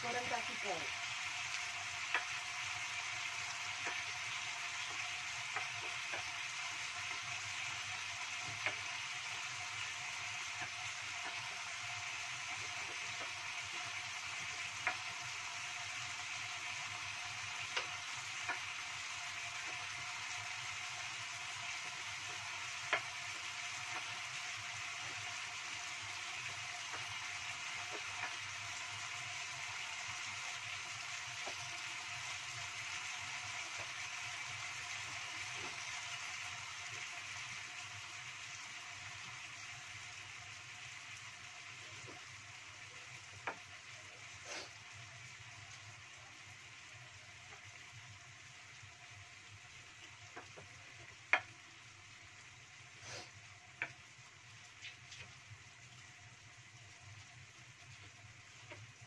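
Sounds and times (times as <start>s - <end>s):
food sizzling in a wok: 0.0s - 59.0s
sharp pops in sizzling oil: 1.4s - 37.2s, 43.2s - 43.7s, 50.0s - 51.7s, 53.7s - 54.1s, 54.7s - 55.5s, 58.0s - 59.0s.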